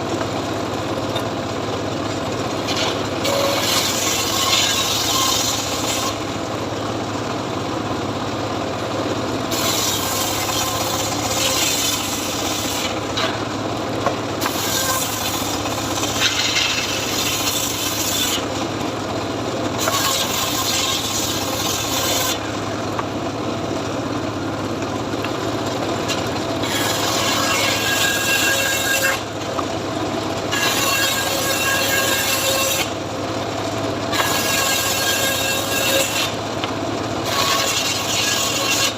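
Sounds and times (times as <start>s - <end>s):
machine hum: 0.0s - 30.6s
saw rasping through wood: 2.5s - 6.6s, 9.5s - 18.9s, 19.6s - 22.8s, 25.6s - 29.6s, 30.4s - 33.0s, 33.9s - 38.9s.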